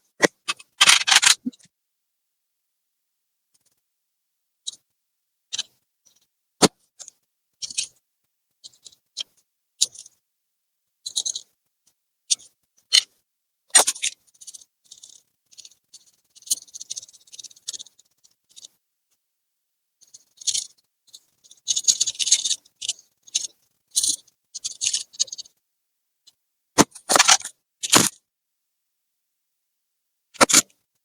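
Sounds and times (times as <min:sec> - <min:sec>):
sharp clicks: 0:00.5 - 0:01.5, 0:30.4 - 0:30.6
scraping on plastic laptop casing: 0:26.8 - 0:28.1, 0:30.4 - 0:30.6.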